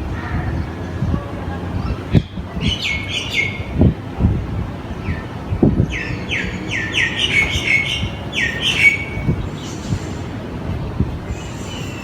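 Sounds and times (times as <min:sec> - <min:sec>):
small birds chirping: 0:00.3 - 0:04.0, 0:04.8 - 0:12.0.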